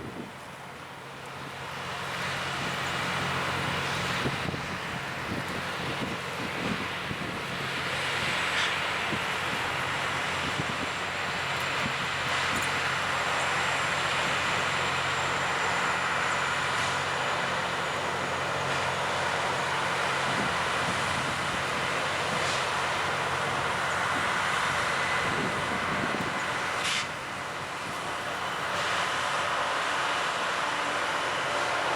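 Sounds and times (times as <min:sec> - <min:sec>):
engine hum: 0:00.0 - 0:31.9
grindstones hissing on rail: 0:02.2 - 0:27.4.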